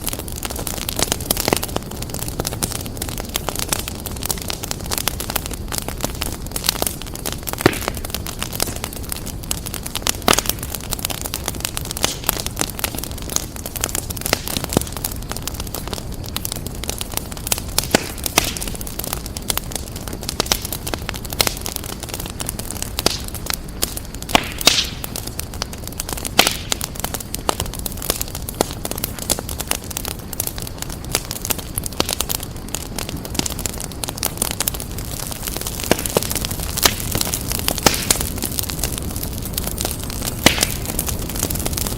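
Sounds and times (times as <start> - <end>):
wood fire crackling: 0.0 - 41.9
sharp pops and snaps: 6.0 - 9.0, 15.9 - 19.2, 20.3 - 29.9, 35.2 - 41.9.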